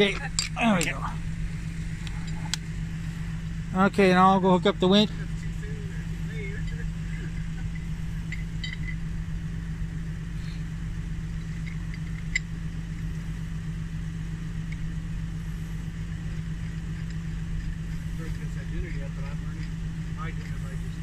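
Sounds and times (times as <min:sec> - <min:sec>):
metal clink: 0:00.0 - 0:01.0, 0:06.4 - 0:09.1
vehicle engine idling: 0:00.0 - 0:21.0.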